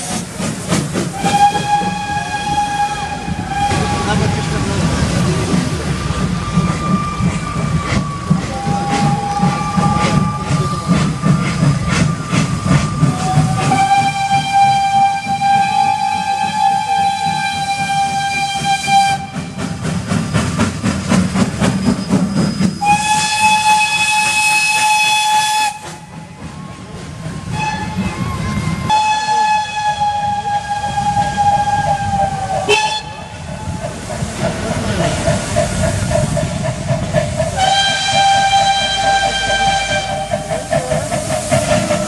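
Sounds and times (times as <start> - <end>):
rhythmic locomotive beat: 0.0 - 42.0
steam hissing: 0.0 - 42.0
steam locomotive whistle blasts: 1.1 - 4.6, 6.2 - 11.1, 12.0 - 19.7, 21.7 - 26.1, 27.4 - 33.4, 37.6 - 40.7.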